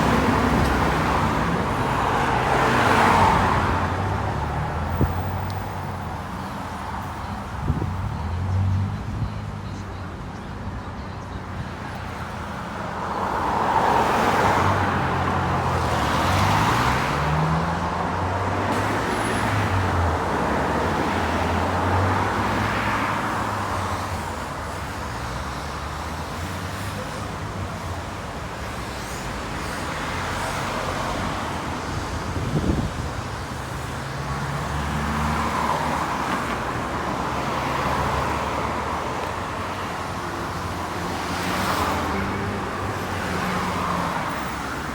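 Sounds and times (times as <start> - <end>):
cars and buses passing: 0.0 - 44.9.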